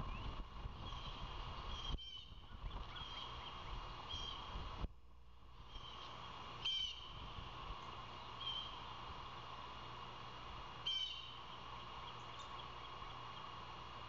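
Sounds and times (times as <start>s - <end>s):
bird calling: 0.0s - 4.5s, 5.6s - 7.2s, 7.8s - 8.8s, 10.8s - 13.6s
steady hum: 0.0s - 14.0s.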